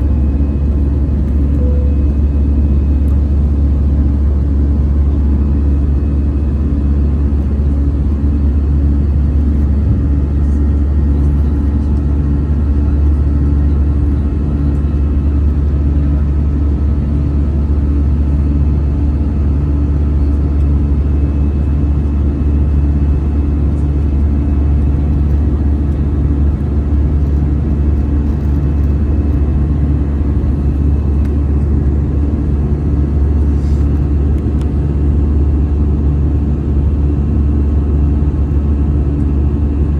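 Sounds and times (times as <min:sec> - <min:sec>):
faint hum: 0:00.0 - 0:06.8, 0:22.7 - 0:36.4
jet airliner cabin drone: 0:00.0 - 0:39.9.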